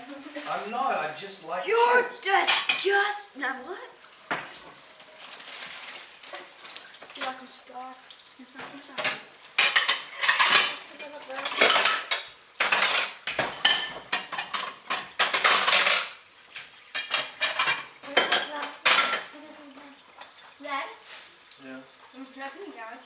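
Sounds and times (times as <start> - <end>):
plates and cutlery clattering: 2.4 - 2.9, 9.0 - 19.3.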